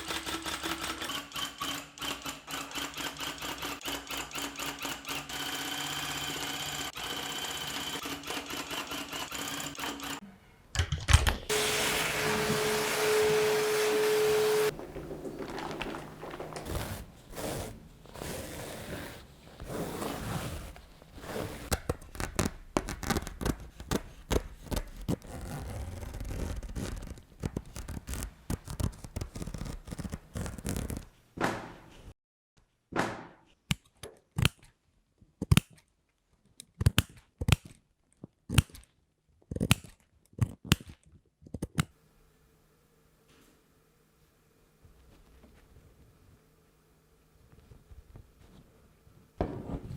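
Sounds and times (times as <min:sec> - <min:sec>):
scraping and rustling on rug: 0:11.9 - 0:21.7
scissor snips: 0:39.5 - 0:41.9.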